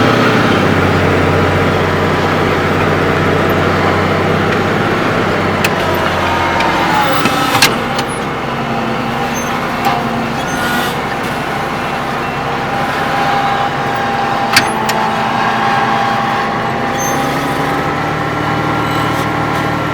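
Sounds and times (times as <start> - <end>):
tractor diesel engine running: 0.0 - 19.9.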